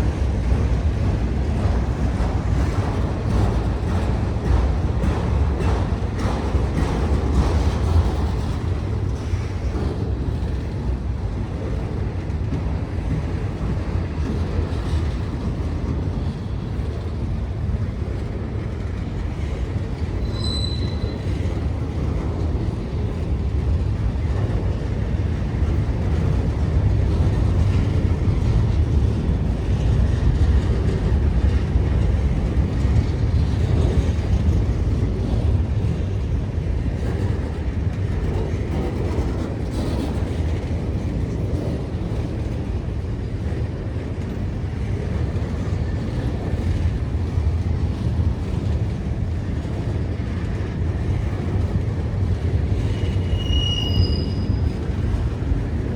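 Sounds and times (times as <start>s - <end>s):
train wheels rumbling on rails: 0.0s - 55.9s
train wheel squealing: 20.1s - 21.8s, 52.6s - 55.5s.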